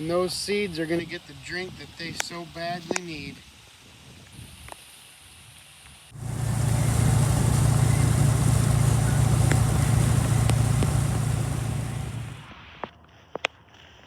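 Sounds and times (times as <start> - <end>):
loud rushing noise: 6.2 - 12.5
vehicle engine running: 6.2 - 12.5.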